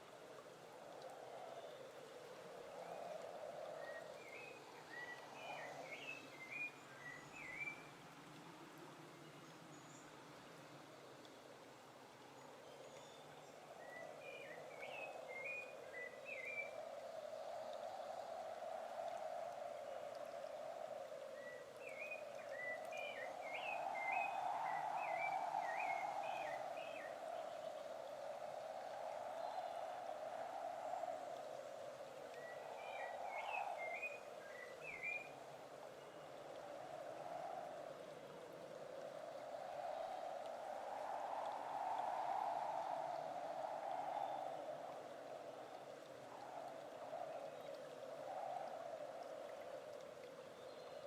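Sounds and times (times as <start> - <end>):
faint steady hiss: 0.0 - 51.0
bird whistling song: 3.8 - 7.9, 13.8 - 16.8, 21.4 - 27.2, 32.4 - 35.4.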